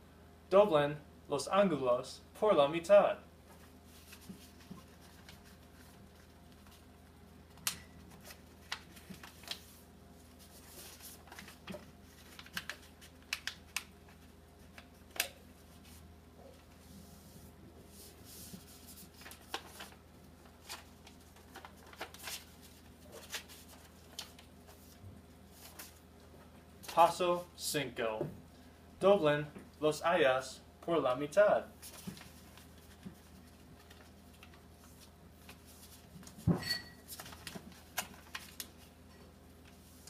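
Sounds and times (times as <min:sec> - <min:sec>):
paper rustling and creasing: 0:03.5 - 0:06.9, 0:07.5 - 0:17.3, 0:17.9 - 0:26.0, 0:31.8 - 0:36.4, 0:37.0 - 0:39.0.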